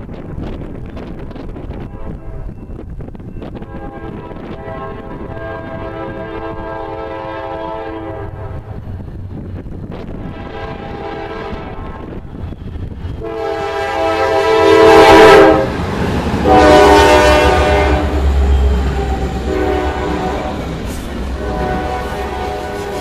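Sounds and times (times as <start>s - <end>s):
low rumble of passing train: 0.0s - 23.0s
locomotive air horn blasts: 1.8s - 2.5s, 3.6s - 8.7s, 10.3s - 12.1s, 13.2s - 15.8s, 16.4s - 23.0s.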